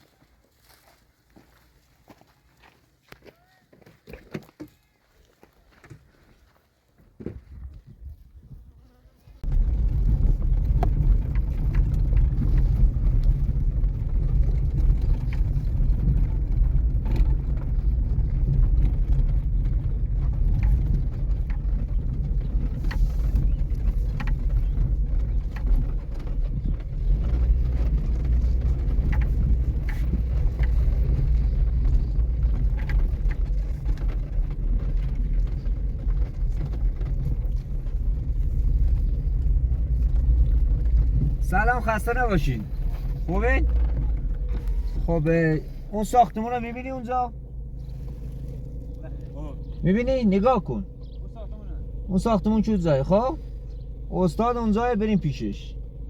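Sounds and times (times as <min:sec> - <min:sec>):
wind noise: 0:07.2 - 0:46.6
vehicle rumbling on the road: 0:07.3 - 0:56.0
small clicks and rattles: 0:09.4 - 0:52.4.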